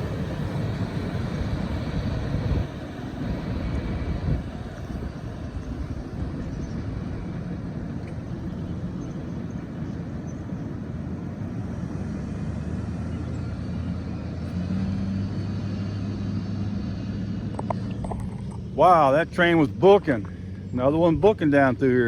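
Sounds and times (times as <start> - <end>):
low steady hum: 0.0 - 14.6
steel wheels rumbling on rail: 0.0 - 21.8.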